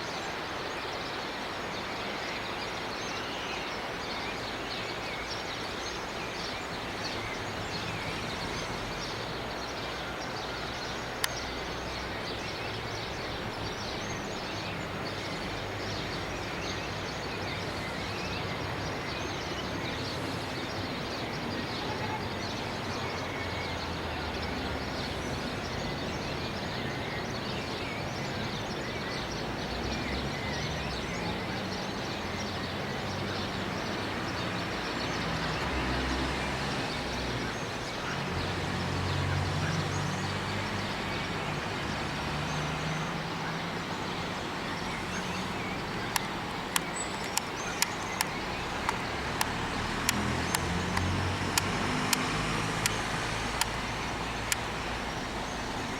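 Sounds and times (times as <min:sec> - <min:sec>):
distant traffic rumble: 0:04.5 - 0:55.9
sharp clicks: 0:46.1 - 0:53.8.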